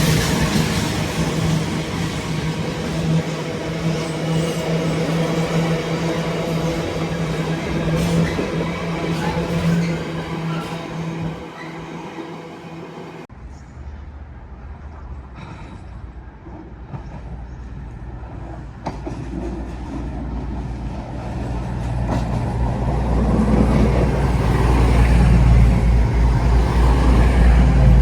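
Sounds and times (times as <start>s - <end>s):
train rumbling: 0.0s - 13.3s, 15.3s - 28.0s.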